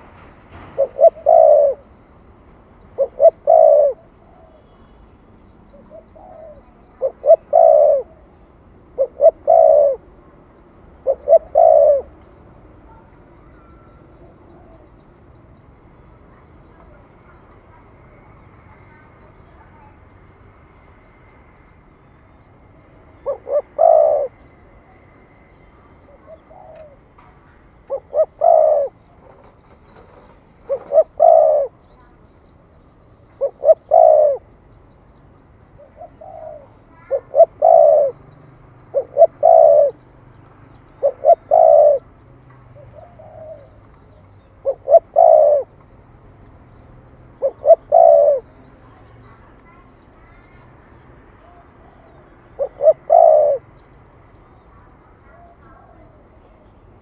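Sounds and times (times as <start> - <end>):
dove cooing: 0.0 - 2.2, 2.9 - 4.7, 5.7 - 10.3, 11.0 - 12.2, 22.8 - 32.2, 33.3 - 34.6, 35.8 - 42.2, 42.8 - 50.6, 51.3 - 57.0.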